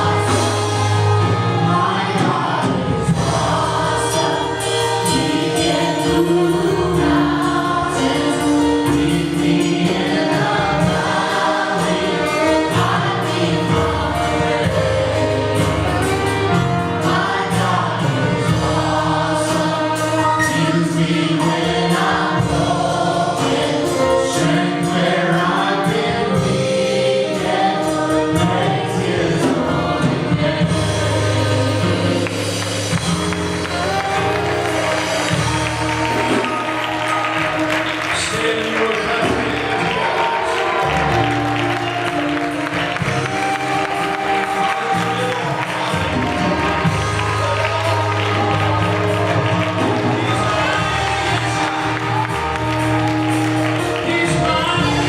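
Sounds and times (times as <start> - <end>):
congregation singing gospel music: 0.0 - 55.0
drums: 0.0 - 55.0.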